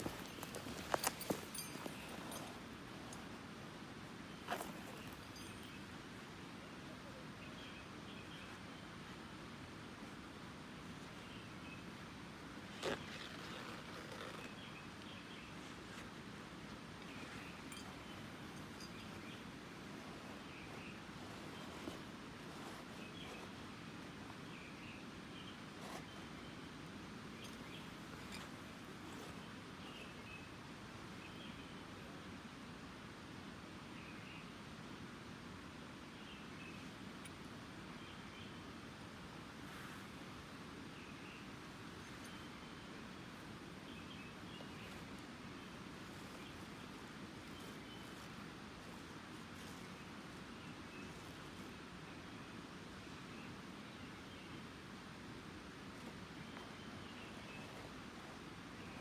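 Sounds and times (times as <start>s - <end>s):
outdoor background noise: 0.0s - 59.0s.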